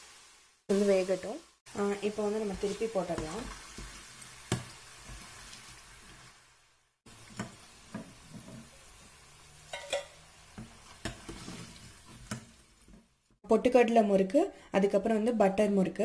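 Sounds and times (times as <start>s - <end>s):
dough sizzling in hot oil: 0.0s - 13.4s
metal spatula scraping a pan: 9.6s - 12.6s.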